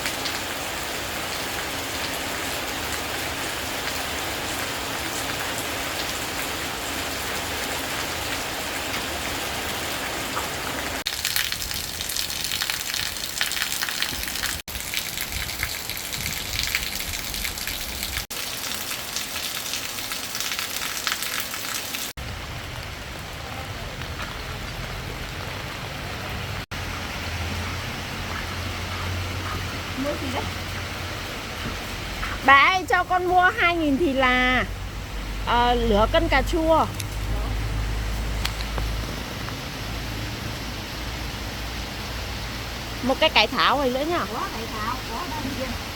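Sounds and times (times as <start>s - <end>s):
rain falling: 0.0s - 45.9s
raindrops on hard surface: 0.0s - 45.9s.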